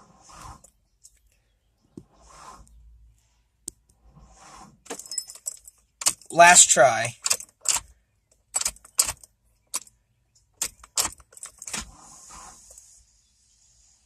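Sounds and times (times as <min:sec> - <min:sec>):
keys jangling: 0:05.0 - 0:05.8
faint hiss: 0:11.9 - 0:14.0.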